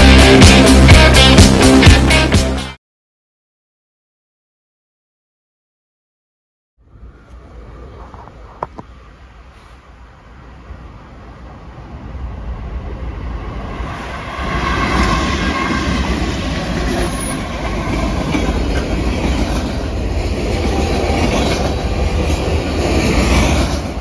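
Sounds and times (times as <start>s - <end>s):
train wheels rolling on rails: 7.2s - 24.0s.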